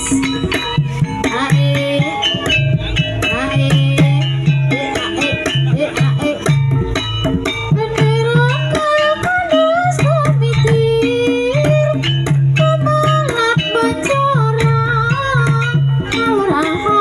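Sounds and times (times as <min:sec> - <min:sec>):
sharp percussion strokes: 0:00.0 - 0:17.0.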